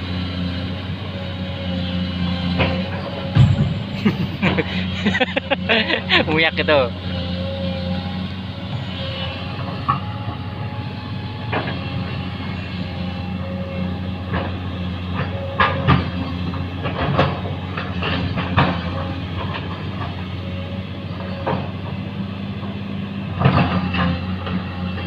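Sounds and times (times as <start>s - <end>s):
engine humming: 0.0s - 25.0s
sharp knocks and clanks: 2.6s - 5.7s.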